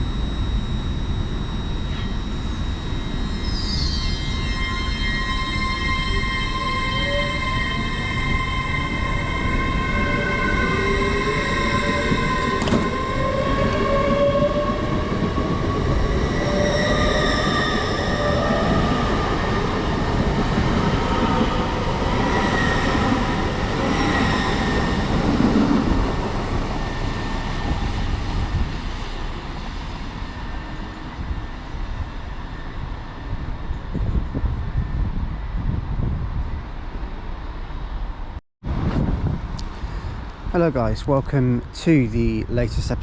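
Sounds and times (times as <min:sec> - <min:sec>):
high ringing tones: 0:00.0 - 0:33.5
train rumble: 0:00.0 - 0:43.0.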